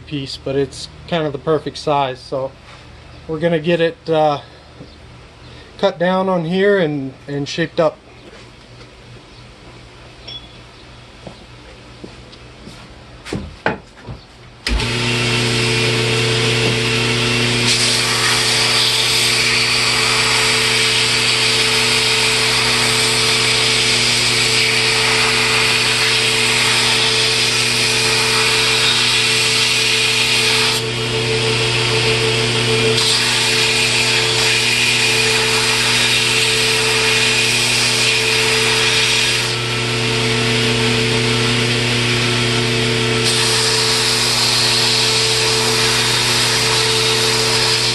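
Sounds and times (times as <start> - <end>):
power tool motor hum: 14.7 - 47.9
wood being cut: 14.7 - 47.9.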